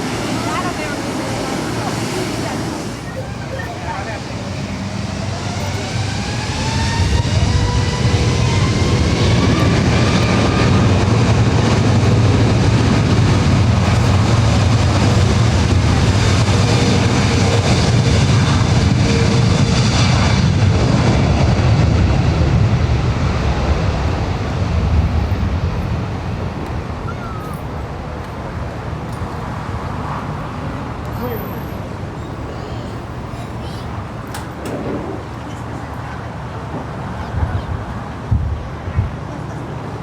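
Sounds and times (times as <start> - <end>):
jet engines spooling up: 0.0 - 25.0.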